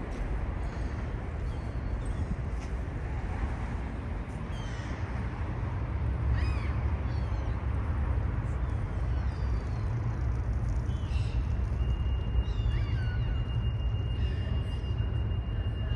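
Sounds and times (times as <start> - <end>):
low outdoor rumble: 0.0 - 15.9.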